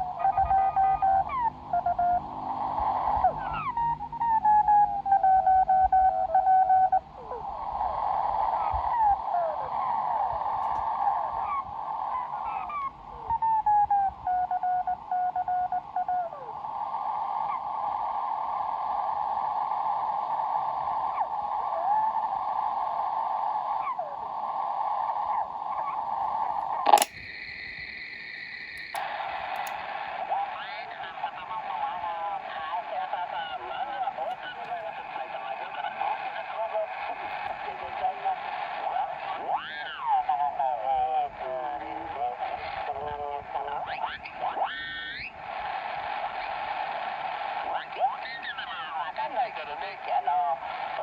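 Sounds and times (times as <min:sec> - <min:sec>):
sharp click: 0:10.6 - 0:10.9, 0:26.6 - 0:27.4, 0:28.2 - 0:29.8
radio band hiss: 0:19.6 - 0:51.0.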